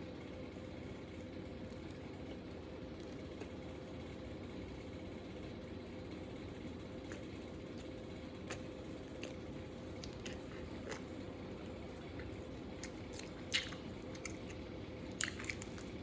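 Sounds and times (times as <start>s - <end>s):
low mechanical hum: 0.0s - 16.0s
faint eating clicks: 7.0s - 16.0s.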